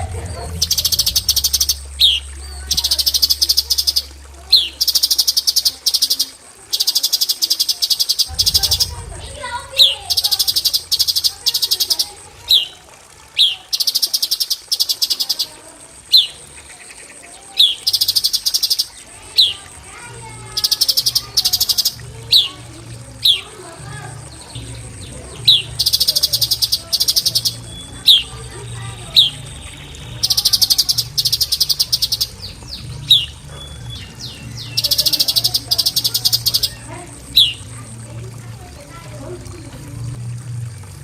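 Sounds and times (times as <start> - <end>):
bird buzzy rattling trills: 0.0 - 39.7.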